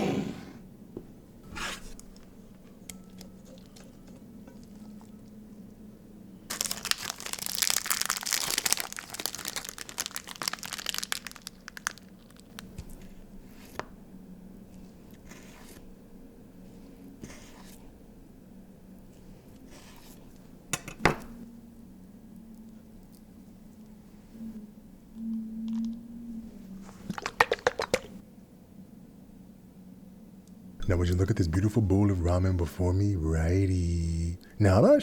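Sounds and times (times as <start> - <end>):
plastic packaging crinkling and tearing: 6.5 - 12.7
faint low hum: 11.4 - 35.0.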